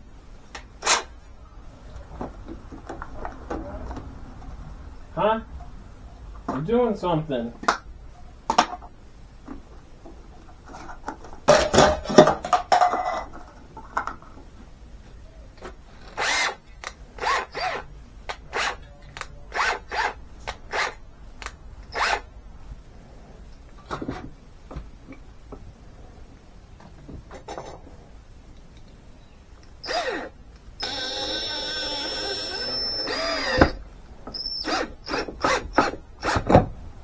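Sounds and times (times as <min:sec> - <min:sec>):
cordless drill driving a screw: 0:00.8 - 0:01.1, 0:16.0 - 0:22.3, 0:29.8 - 0:36.6.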